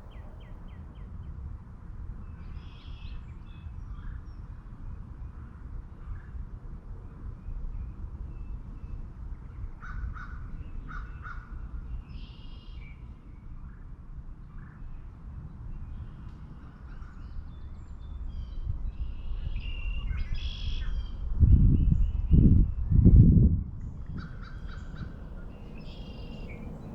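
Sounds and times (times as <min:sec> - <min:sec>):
wind rumble: 0:00.0 - 0:00.9, 0:21.5 - 0:26.9.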